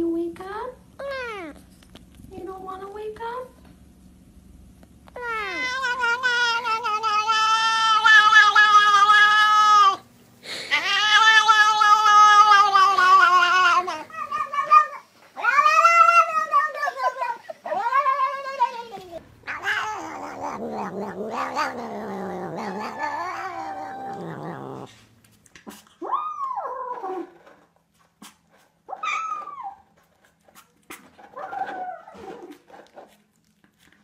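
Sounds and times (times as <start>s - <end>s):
cat calling: 5.2s - 10.0s, 10.7s - 18.9s, 19.5s - 24.9s.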